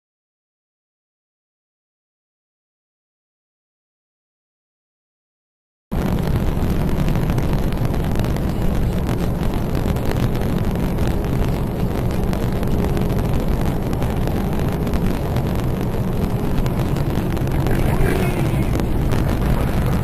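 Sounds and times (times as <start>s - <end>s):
wind noise: 5.9s - 20.0s
car engine: 6.0s - 20.0s.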